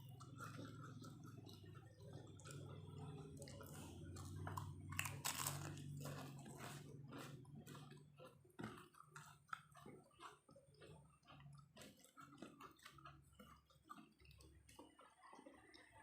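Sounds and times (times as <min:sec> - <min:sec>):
person chewing: 0:00.0 - 0:15.6.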